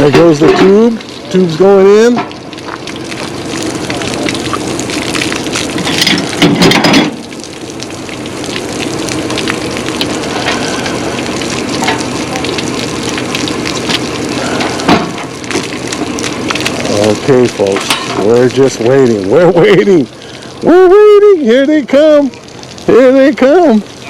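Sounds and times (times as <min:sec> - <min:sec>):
water rushing surge: 0:00.0 - 0:20.8
low machine hum: 0:00.0 - 0:24.0
watery hiss: 0:09.0 - 0:12.5, 0:14.2 - 0:15.4, 0:16.7 - 0:20.8.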